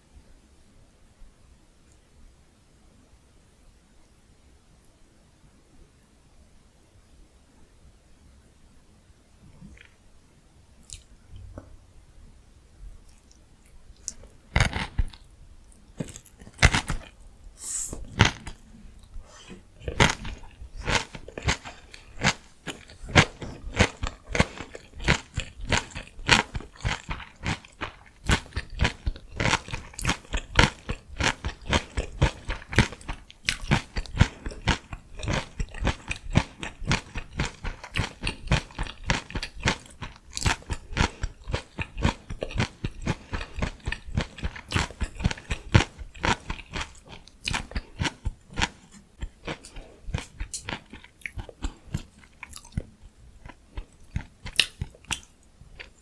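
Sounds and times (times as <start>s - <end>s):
chewing crunchy vegetables: 10.8s - 11.5s, 13.0s - 56.0s.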